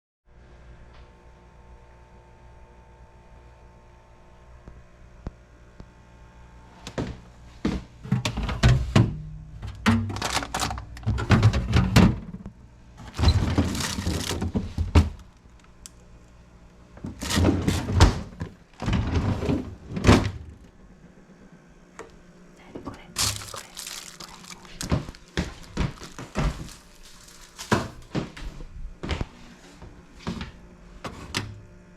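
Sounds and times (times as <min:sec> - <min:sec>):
fridge doors and drawers knocking: 0:08.1 - 0:12.4, 0:13.0 - 0:15.3, 0:17.0 - 0:20.6, 0:23.2 - 0:28.3
objects set down: 0:13.0 - 0:15.3, 0:23.2 - 0:28.3.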